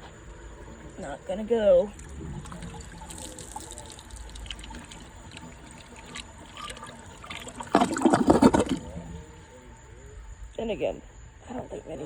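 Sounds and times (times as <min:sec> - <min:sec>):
toilet trickling and filling: 0:00.0 - 0:09.6.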